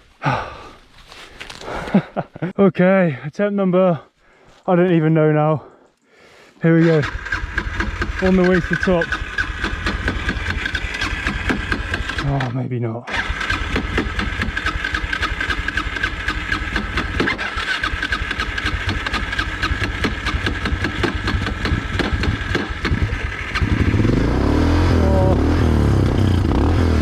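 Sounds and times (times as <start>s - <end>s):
motorcycle engine revving: 6.8s - 12.5s, 13.1s - 27.0s.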